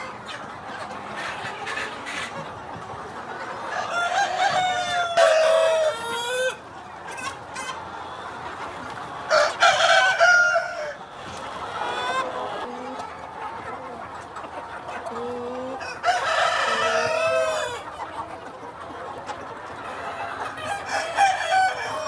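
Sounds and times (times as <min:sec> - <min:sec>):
hens clucking: 0:00.0 - 0:22.0
rooster crowing: 0:09.3 - 0:11.0, 0:15.8 - 0:17.8, 0:20.8 - 0:22.0.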